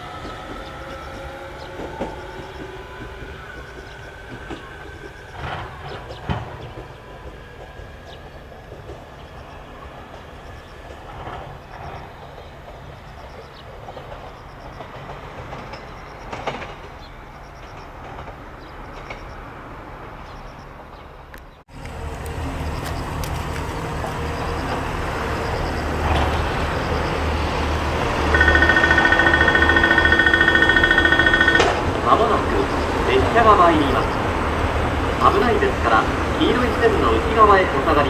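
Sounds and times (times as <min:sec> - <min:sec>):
train rumbling: 0:00.0 - 0:38.0
pulsing electronic warning signal: 0:24.3 - 0:27.6, 0:28.3 - 0:31.9.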